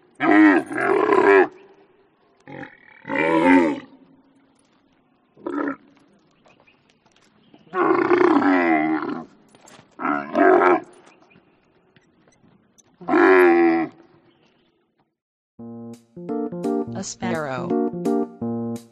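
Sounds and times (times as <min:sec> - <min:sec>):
camel calling: 0:00.2 - 0:01.8, 0:02.4 - 0:04.2, 0:05.4 - 0:06.2, 0:07.6 - 0:11.5, 0:12.9 - 0:14.2.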